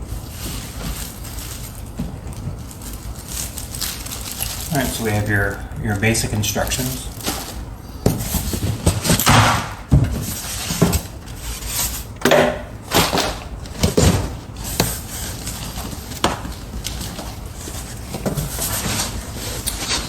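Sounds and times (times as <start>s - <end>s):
packaging rustling and scraping: 0.0s - 20.0s
sharp knocks and thumps: 7.2s - 11.1s.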